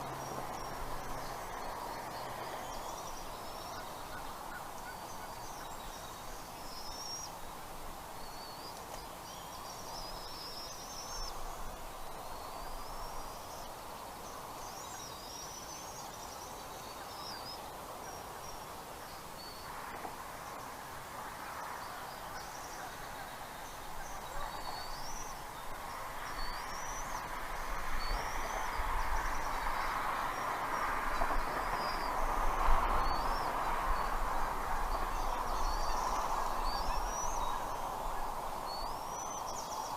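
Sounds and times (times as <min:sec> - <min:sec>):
steady outdoor noise: 0:00.0 - 0:39.9
birds chirping: 0:21.6 - 0:39.9.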